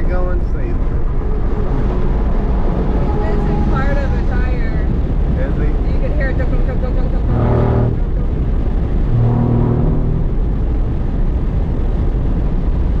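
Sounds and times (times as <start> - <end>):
car engine and road noise: 0.0 - 13.0
low droning tone: 0.4 - 5.3, 6.6 - 12.3.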